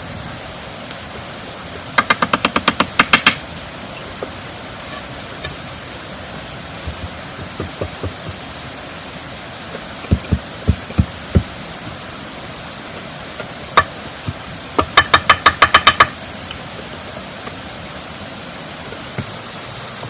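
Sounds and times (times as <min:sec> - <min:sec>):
background hiss: 0:00.0 - 0:20.0
sharp knocks: 0:02.0 - 0:03.4, 0:06.8 - 0:08.5, 0:10.0 - 0:11.5, 0:13.4 - 0:16.2
dull low thuds: 0:06.7 - 0:08.6, 0:10.0 - 0:11.6.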